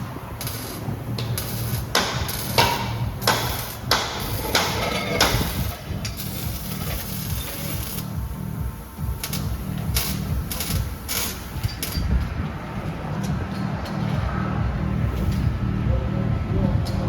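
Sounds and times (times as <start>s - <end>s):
steady low hum: 0.0s - 17.0s
sharp knocks: 1.9s - 5.5s.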